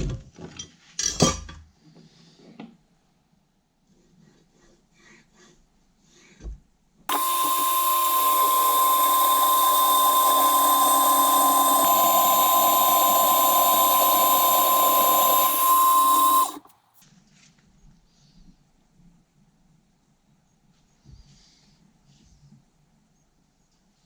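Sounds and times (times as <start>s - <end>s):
electric power tool whining: 7.1s - 16.7s.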